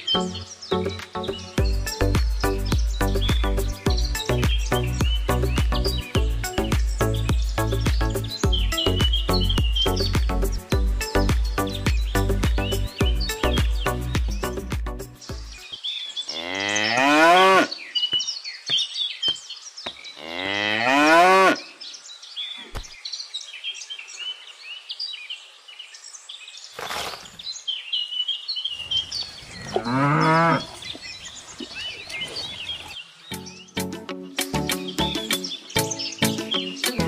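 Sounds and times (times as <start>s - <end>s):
cow mooing: 16.3s - 17.7s, 20.2s - 21.6s, 29.7s - 30.8s.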